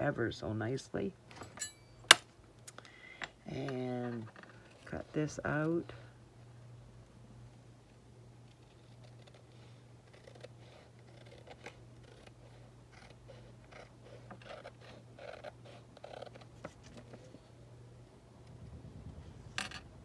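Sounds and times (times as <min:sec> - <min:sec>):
scissors snipping paper: 0:08.6 - 0:17.1
low hum: 0:17.8 - 0:20.0.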